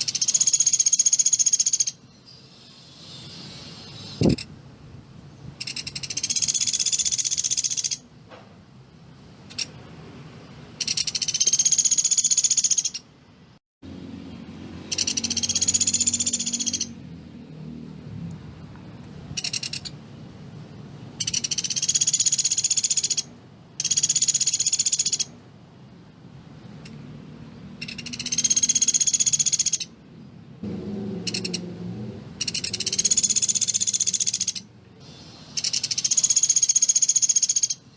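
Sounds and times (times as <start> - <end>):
woodpecker rattling trill: 0.0 - 2.0, 5.6 - 8.0, 9.5 - 9.8, 10.8 - 13.1, 14.8 - 17.0, 19.4 - 20.0, 21.2 - 25.3, 27.8 - 30.0, 31.3 - 31.6, 32.4 - 34.7, 35.6 - 37.8.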